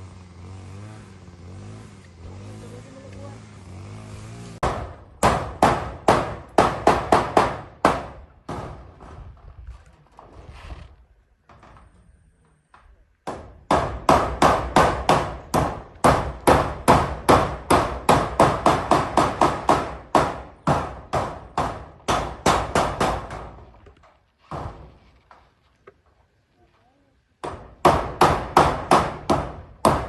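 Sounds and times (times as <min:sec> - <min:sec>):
hammer driving nails: 0:04.6 - 0:09.2, 0:13.2 - 0:25.3, 0:27.4 - 0:30.0.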